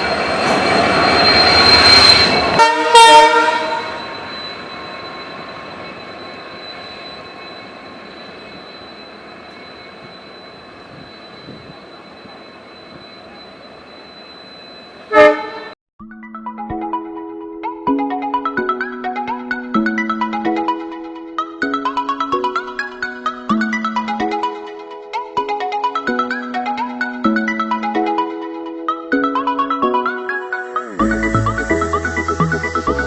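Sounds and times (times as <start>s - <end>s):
high whine: 0.0s - 15.8s, 30.4s - 33.0s
train running noise: 0.0s - 15.8s
train horn blast: 2.6s - 4.1s, 15.1s - 15.8s.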